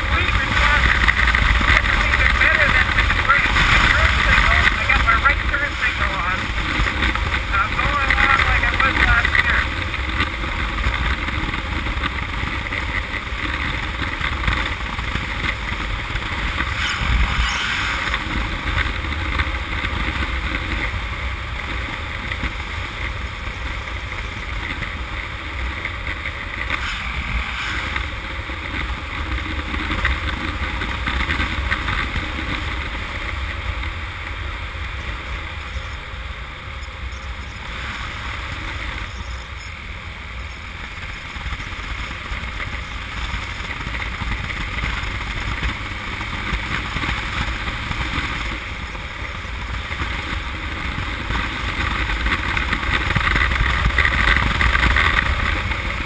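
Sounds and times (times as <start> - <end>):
motorcycle engine running: 0.0 - 56.0
wind rush: 14.6 - 19.2, 26.2 - 29.2.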